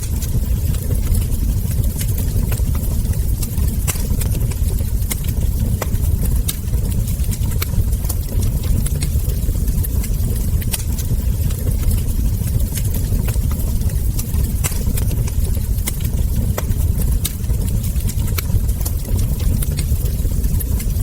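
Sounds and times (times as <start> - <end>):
low rumble: 0.0 - 21.0
wood fire crackling and popping: 0.0 - 21.0.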